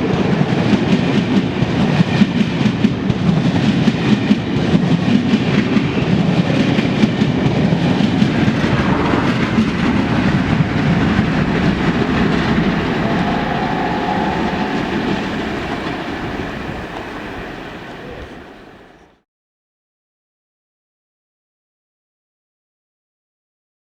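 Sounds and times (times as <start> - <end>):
train wheels clattering on track: 0.0 - 19.1.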